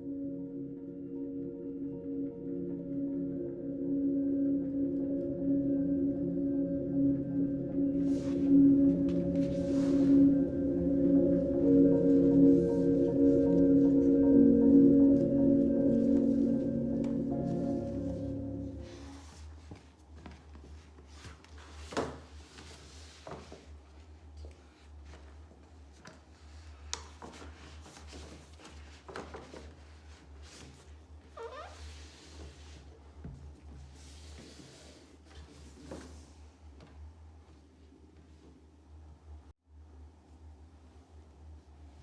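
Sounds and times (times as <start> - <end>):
low steady hum: 0.0 - 19.4
slow ambient music: 0.0 - 19.9.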